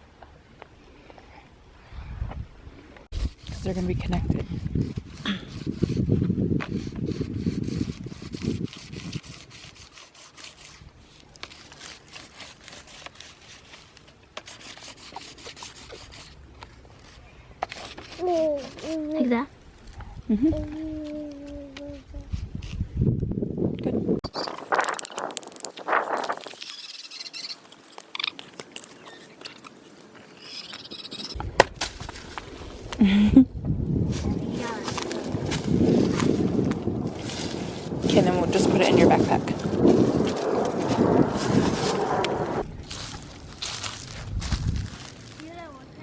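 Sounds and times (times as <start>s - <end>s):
scratchy rubbing on paper: 3.1s - 10.8s, 14.4s - 16.4s, 17.0s - 19.0s
light crunching and crackling: 24.3s - 30.4s, 34.0s - 46.0s.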